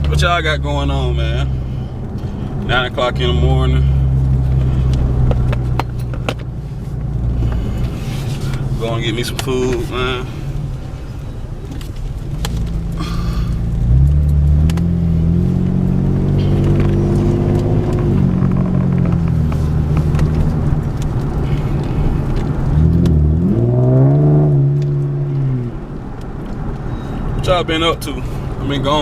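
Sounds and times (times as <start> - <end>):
car engine accelerating: 0.0 - 29.0.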